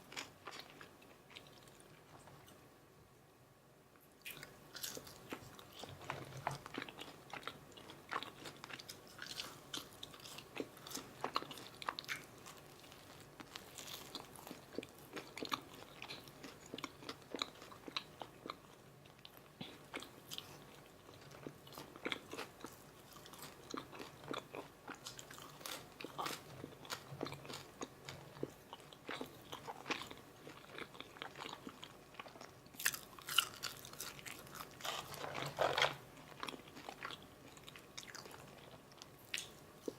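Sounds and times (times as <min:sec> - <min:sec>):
person chewing crunchy food: 0:00.0 - 0:02.6, 0:04.2 - 0:39.9.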